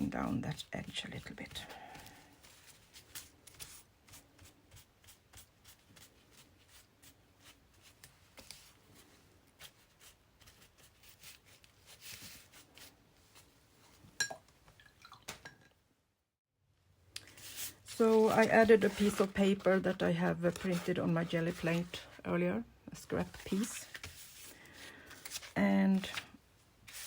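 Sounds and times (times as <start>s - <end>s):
paper rustling: 1.5s - 6.8s, 7.4s - 14.0s, 17.3s - 22.2s, 23.1s - 27.0s.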